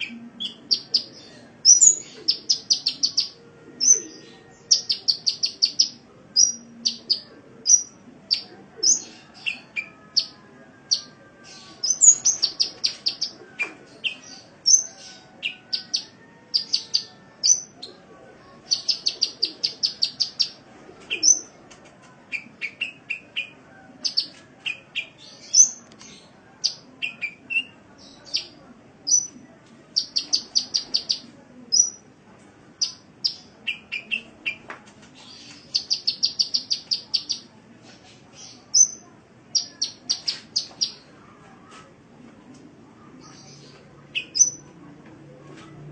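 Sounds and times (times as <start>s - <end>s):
bird song trills and chips: 0.0s - 18.0s, 18.7s - 21.5s, 30.0s - 32.0s, 32.8s - 37.5s, 38.4s - 41.0s.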